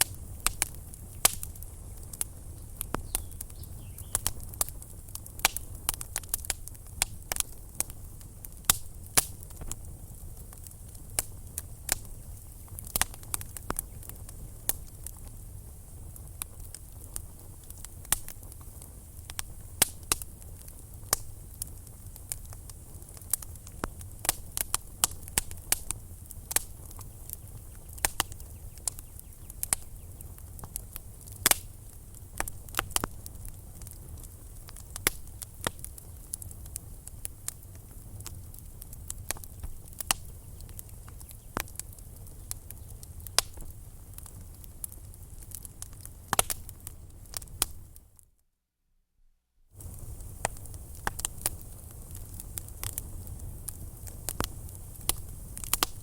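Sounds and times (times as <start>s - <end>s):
low steady fire rumble: 0.0s - 48.2s, 49.7s - 56.0s
wood fire crackling: 0.0s - 48.2s, 49.7s - 56.0s
faint hiss: 49.8s - 56.0s.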